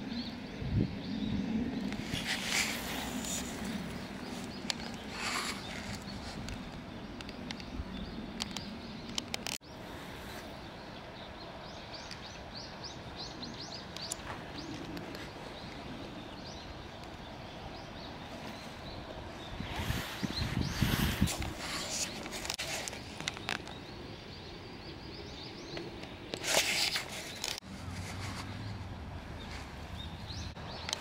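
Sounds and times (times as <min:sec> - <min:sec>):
small birds chirping: 0:00.0 - 0:31.0
faint clicks: 0:04.4 - 0:09.6.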